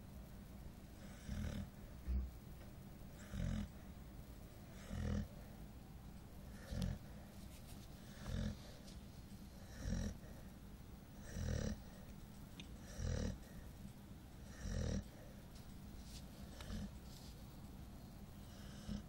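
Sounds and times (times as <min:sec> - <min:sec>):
dog snoring: 0:01.0 - 0:02.3, 0:03.1 - 0:03.9, 0:04.7 - 0:05.6, 0:06.5 - 0:07.1, 0:08.0 - 0:08.8, 0:09.6 - 0:10.5, 0:11.1 - 0:12.0, 0:12.8 - 0:13.6, 0:14.4 - 0:15.4, 0:16.4 - 0:17.0, 0:18.4 - 0:19.0.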